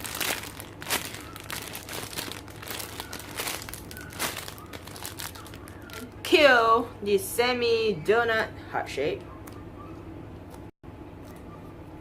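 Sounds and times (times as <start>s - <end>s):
plastic packaging crinkling: 0.0s - 6.1s.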